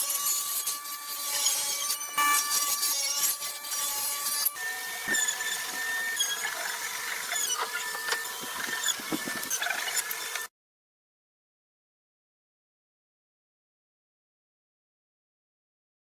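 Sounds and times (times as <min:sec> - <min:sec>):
machinery whining and rattling: 0:05.0 - 0:10.5.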